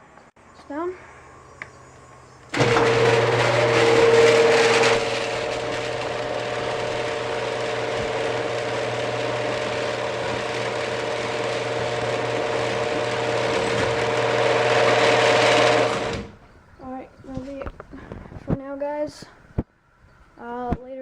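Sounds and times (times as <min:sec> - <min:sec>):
garage door opener humming: 0:02.1 - 0:16.5.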